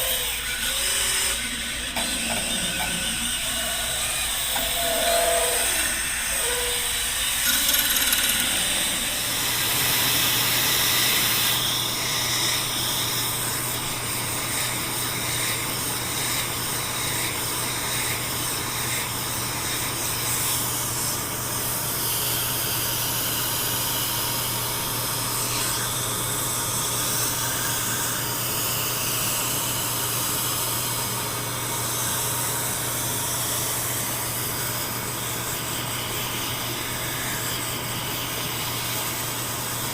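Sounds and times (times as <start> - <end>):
electric drill running: 0.0 - 18.2.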